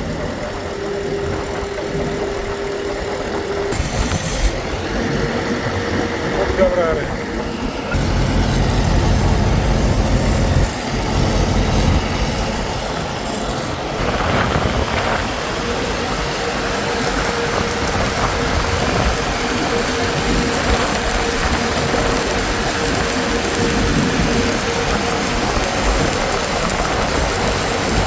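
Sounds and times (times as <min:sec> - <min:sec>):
engine running: 0:00.0 - 0:28.0.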